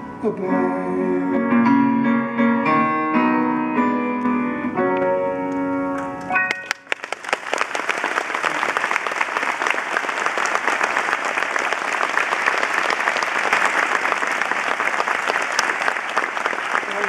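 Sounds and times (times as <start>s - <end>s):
large audience applauding: 6.5s - 17.0s.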